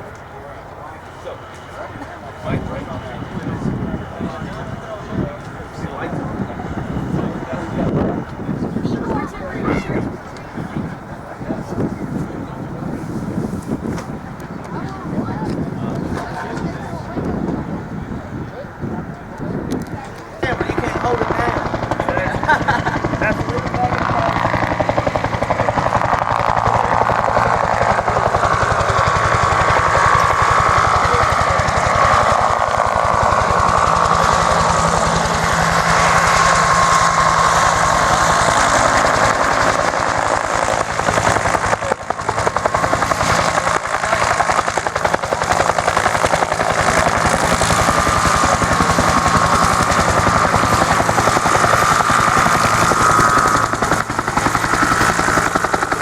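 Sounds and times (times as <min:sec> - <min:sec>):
helicopter rotor blades beating: 0:00.0 - 0:56.0
turbine engine whine: 0:00.0 - 0:56.0.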